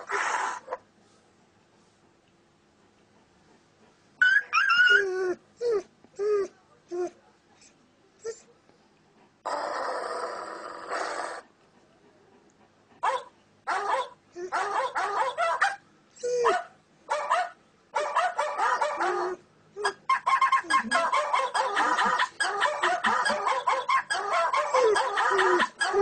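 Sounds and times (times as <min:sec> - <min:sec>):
dog barking: 0:13.0 - 0:15.8, 0:16.4 - 0:26.0.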